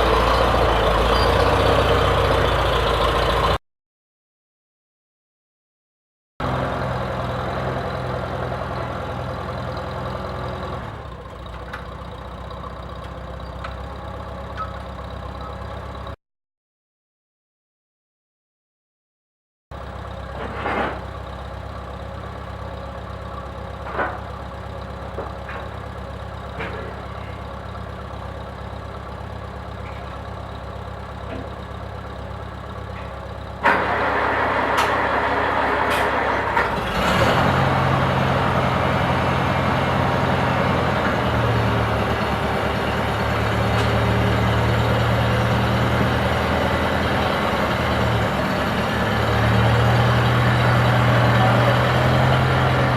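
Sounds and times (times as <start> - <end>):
tractor engine running: 0.0 - 3.6, 6.4 - 16.2, 19.8 - 52.9.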